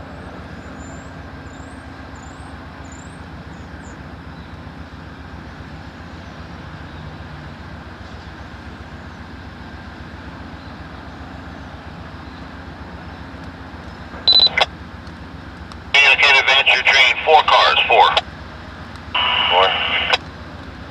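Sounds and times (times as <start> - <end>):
radio squelch burst: 14.3 - 14.7, 16.0 - 18.2, 19.2 - 20.2
radio talk: 14.3 - 14.7, 16.0 - 18.2, 19.2 - 20.2.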